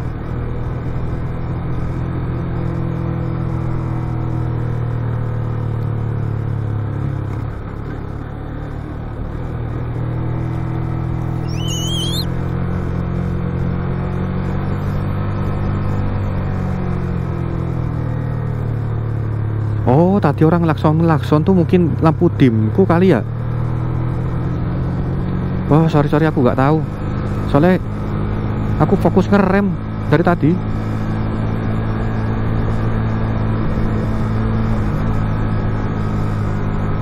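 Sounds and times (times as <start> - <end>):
high rising squeal: 11.4 - 12.3.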